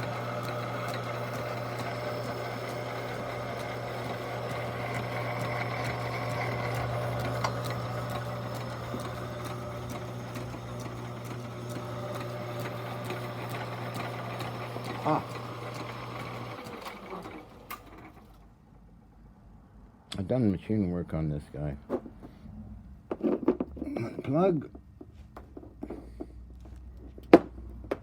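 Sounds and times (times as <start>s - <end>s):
lathe motor humming and whirring: 0.0s - 18.4s.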